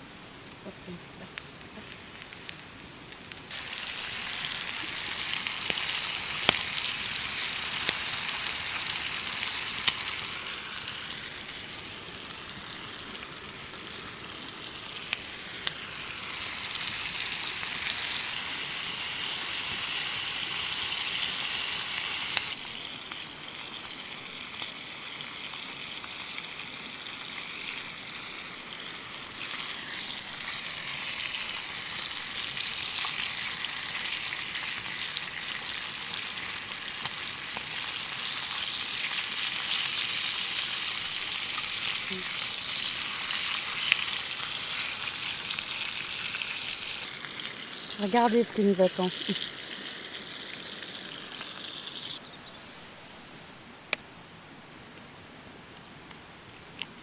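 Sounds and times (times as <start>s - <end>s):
vegetables sizzling in a pan: 0.0s - 52.2s.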